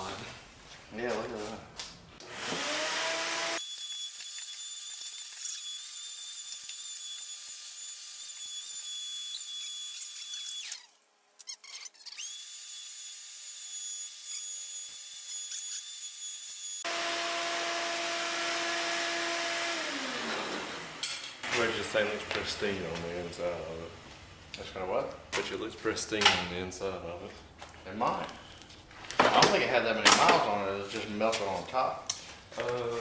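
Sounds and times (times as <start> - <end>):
power tool whining: 2.2 - 11.0, 13.7 - 24.1.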